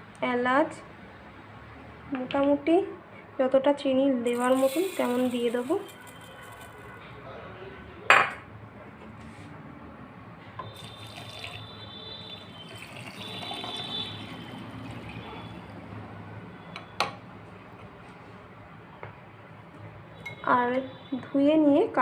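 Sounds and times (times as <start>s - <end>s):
liquid pouring into container: 4.4s - 6.9s, 10.8s - 15.8s.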